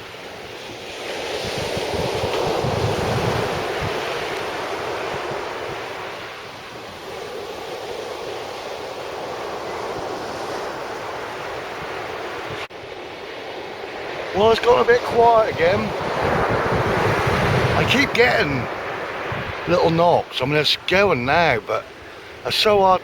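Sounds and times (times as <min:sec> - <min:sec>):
wind buffeting microphone: 0:00.0 - 0:22.4
sea waves breaking: 0:00.0 - 0:23.0.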